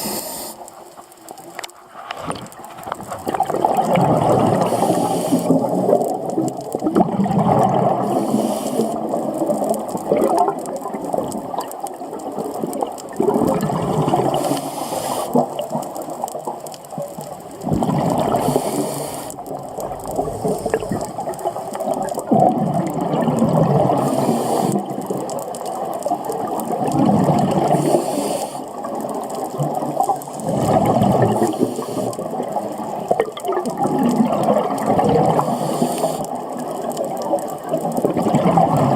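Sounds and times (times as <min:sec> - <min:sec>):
breathing through a regulator: 0:00.0 - 0:00.8, 0:04.4 - 0:05.8, 0:08.0 - 0:09.2, 0:14.3 - 0:15.6, 0:18.1 - 0:21.9, 0:23.9 - 0:25.0, 0:27.6 - 0:28.9, 0:31.1 - 0:32.5, 0:35.2 - 0:36.5
exhaled bubbles gurgling: 0:00.0 - 0:38.9.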